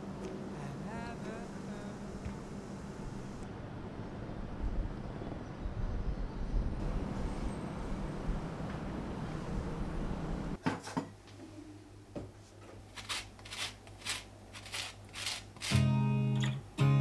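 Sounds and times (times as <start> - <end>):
short rustling brushing sounds: 12.8 - 15.9.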